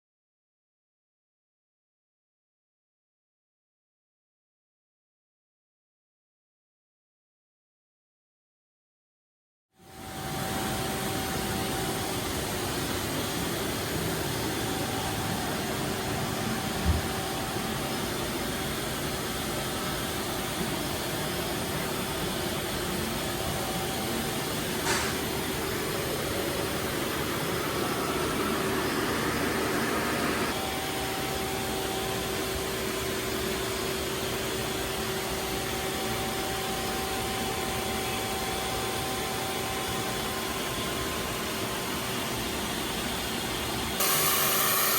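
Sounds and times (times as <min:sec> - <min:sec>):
lathe machine hum: 0:10.0 - 0:32.5, 0:44.0 - 0:44.9
hissing machine noise: 0:10.2 - 0:32.3, 0:44.0 - 0:44.9.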